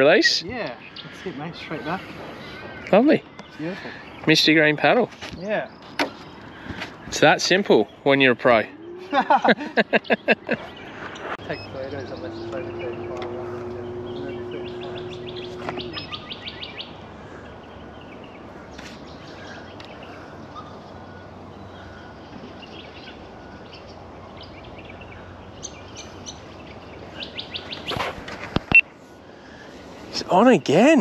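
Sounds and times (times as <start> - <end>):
birds trilling and chirping: 0.0 - 31.0
steady low hum: 7.9 - 16.4.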